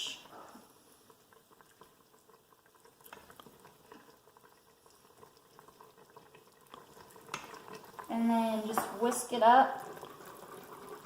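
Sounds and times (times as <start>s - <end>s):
broth bubbling: 0.0s - 11.0s
small irregular pops: 2.8s - 4.2s, 5.2s - 7.9s.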